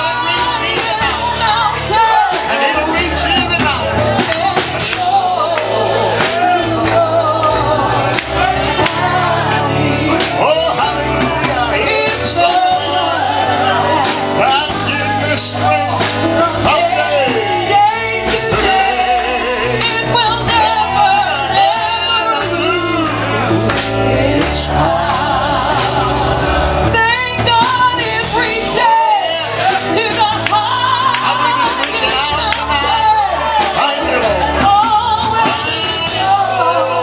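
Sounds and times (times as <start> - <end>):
bass line: 0.0 - 37.0
gospel band music: 0.0 - 37.0
person singing: 0.0 - 37.0
drum hits: 0.2 - 19.2.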